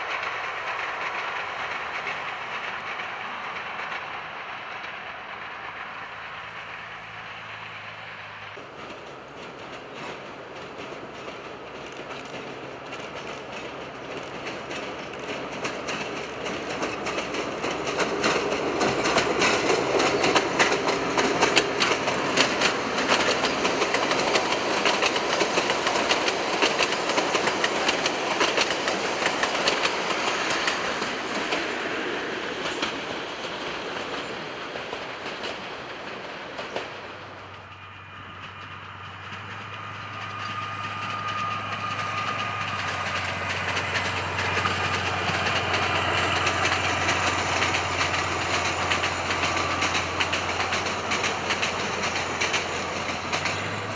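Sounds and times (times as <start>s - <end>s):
train passing: 0.0s - 53.9s
wheels clicking over rail joints: 8.6s - 53.9s.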